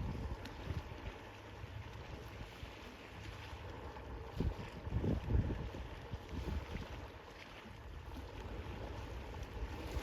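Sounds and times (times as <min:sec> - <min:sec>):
wind buffeting microphone: 0:00.0 - 0:01.1, 0:04.2 - 0:10.0
sea waves washing: 0:00.0 - 0:10.0.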